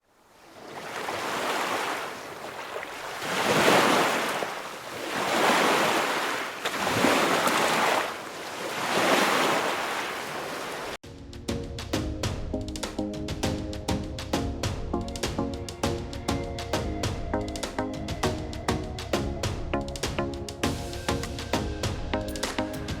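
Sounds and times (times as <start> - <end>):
sea waves breaking: 0.2 - 11.0.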